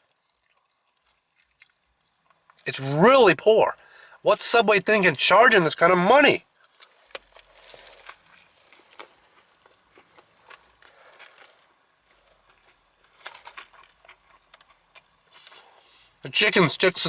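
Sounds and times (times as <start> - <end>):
person chewing: 0.0 - 2.6, 6.5 - 16.2
soft clicks and crackles: 0.0 - 2.7, 6.6 - 15.8.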